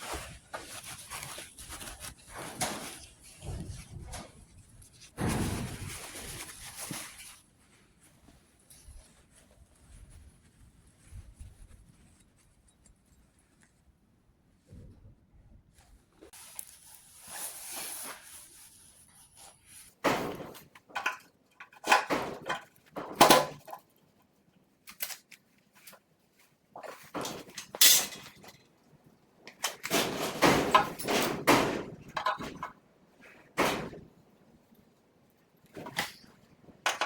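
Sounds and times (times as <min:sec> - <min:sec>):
tools and metal parts clanking: 0:27.2 - 0:28.6.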